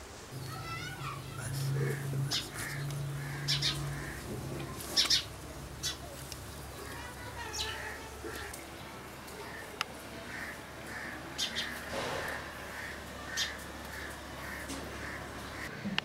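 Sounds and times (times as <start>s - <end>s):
low steady hum: 0.3s - 9.3s
birds chirping: 0.3s - 15.8s.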